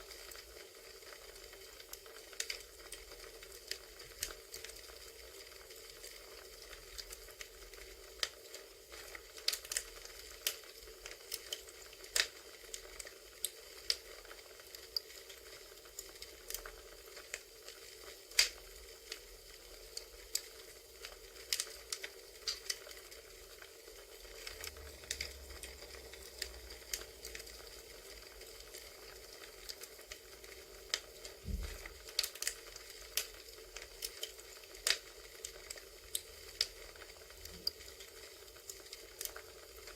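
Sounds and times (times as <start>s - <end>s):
wood fire crackling: 0.0s - 39.9s
low thump: 31.5s - 31.8s.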